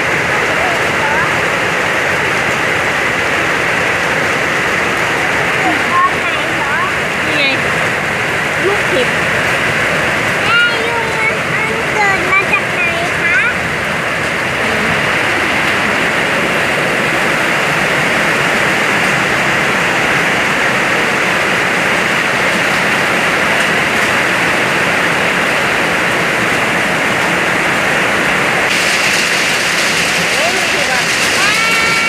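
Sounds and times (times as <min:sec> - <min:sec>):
hail and heavy rain: 0:00.0 - 0:32.0.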